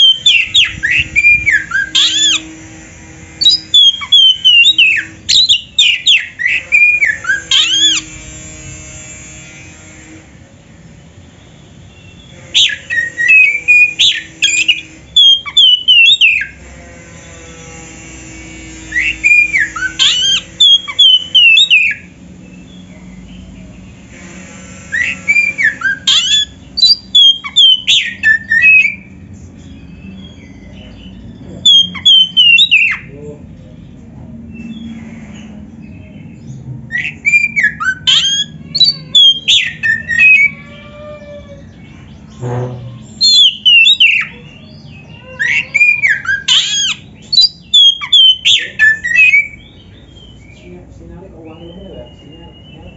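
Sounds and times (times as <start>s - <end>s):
bird singing whistled phrases: 3.4s - 8.0s, 12.0s - 16.5s, 18.9s - 22.1s, 25.0s - 29.1s, 30.4s - 33.1s, 36.9s - 41.4s, 43.2s - 50.6s.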